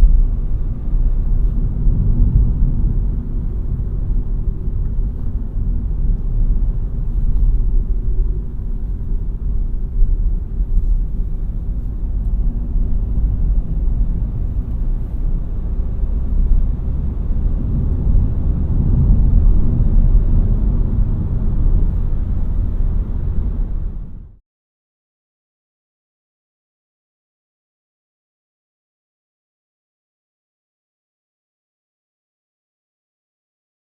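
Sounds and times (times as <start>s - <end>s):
car engine and tyres rumbling: 0.0s - 24.4s.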